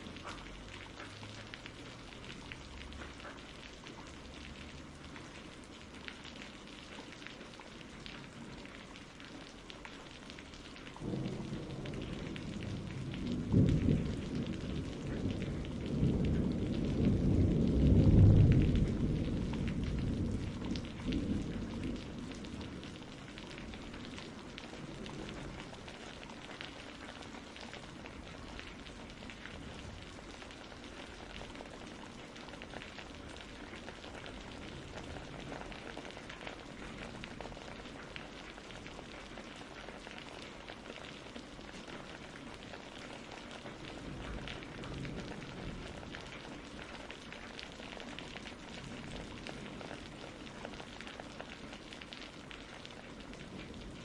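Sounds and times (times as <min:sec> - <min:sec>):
steady rain falling: 0:00.0 - 0:54.0
thunder rumbling: 0:11.0 - 0:39.8, 0:43.6 - 0:47.1, 0:48.0 - 0:51.3.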